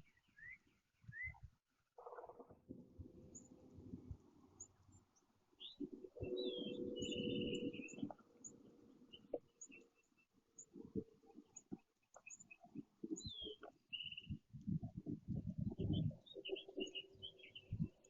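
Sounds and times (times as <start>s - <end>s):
small birds chirping: 0.0s - 2.4s, 3.2s - 18.0s.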